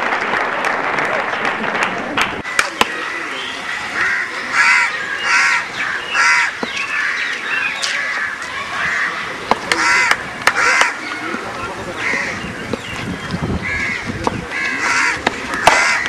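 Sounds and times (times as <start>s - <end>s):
harsh cawing bird calls: 2.9s - 16.0s.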